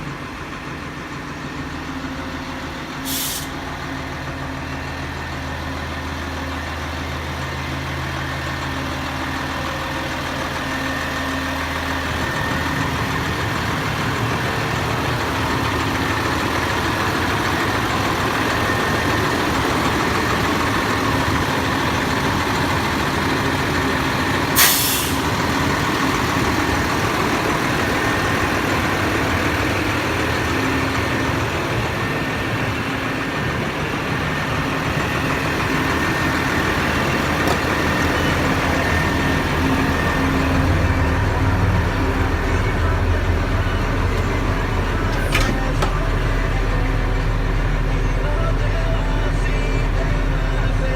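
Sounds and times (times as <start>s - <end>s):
diesel truck engine running: 0.0s - 50.9s
air hiss: 3.1s - 3.6s, 24.6s - 25.3s.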